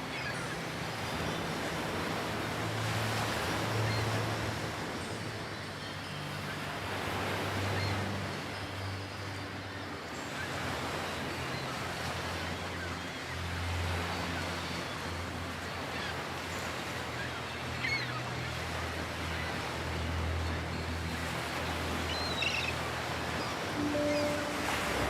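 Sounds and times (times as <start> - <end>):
ocean waves rushing: 10.6 - 25.0
low ambient drone: 16.6 - 25.0.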